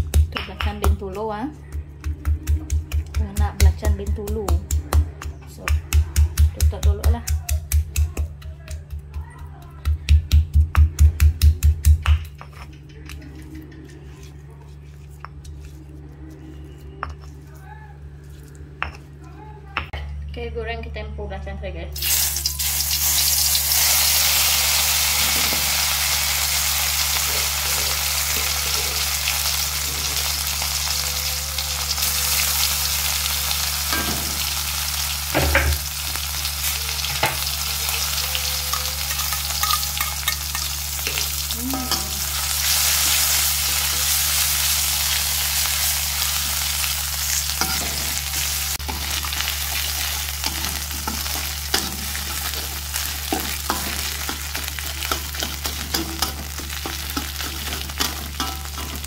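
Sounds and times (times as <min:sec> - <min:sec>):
chilies sizzling in hot oil: 0:22.0 - 0:59.0.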